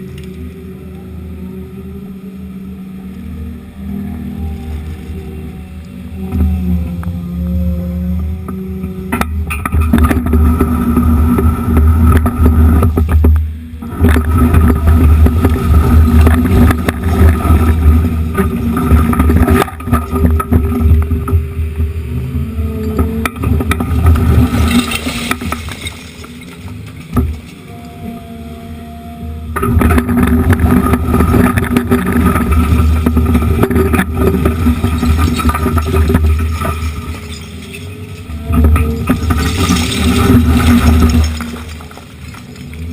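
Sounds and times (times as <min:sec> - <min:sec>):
excavator diesel engine: 0:00.0 - 0:42.9
hydraulic whine: 0:00.0 - 0:42.9
bucket scraping: 0:09.5 - 0:21.3, 0:23.0 - 0:27.5, 0:29.6 - 0:42.9
broken concrete clattering: 0:23.3 - 0:27.6, 0:29.6 - 0:42.9.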